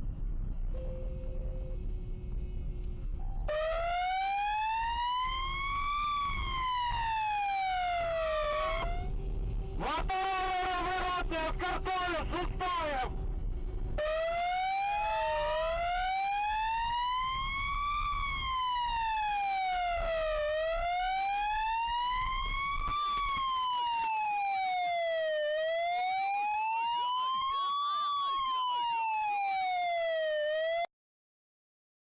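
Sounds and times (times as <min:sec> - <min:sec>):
low rumble: 0:00.0 - 0:03.9, 0:08.9 - 0:09.8, 0:13.0 - 0:14.4
police siren wailing: 0:03.2 - 0:30.9.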